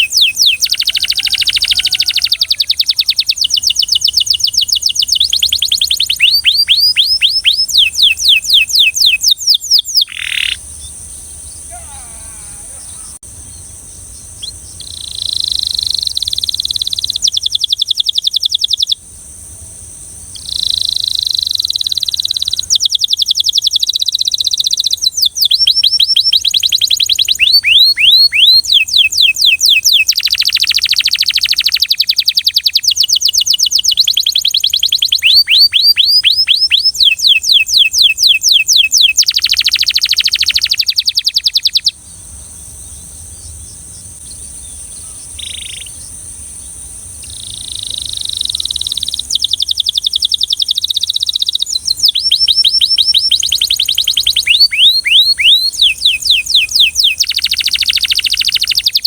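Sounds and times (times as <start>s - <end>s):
canary singing trills: 0.0s - 19.0s, 20.3s - 59.0s
faint high hiss: 7.7s - 27.4s, 40.0s - 59.0s.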